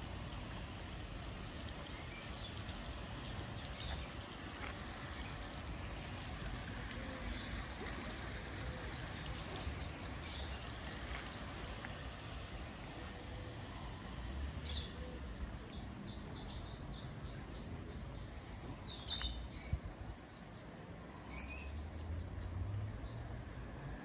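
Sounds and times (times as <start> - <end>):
small birds chirping: 1.6 - 5.8, 6.9 - 12.7.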